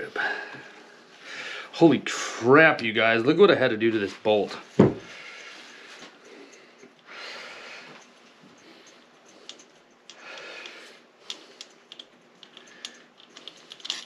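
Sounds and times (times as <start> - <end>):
person breathing out heavily: 10.2 - 11.6.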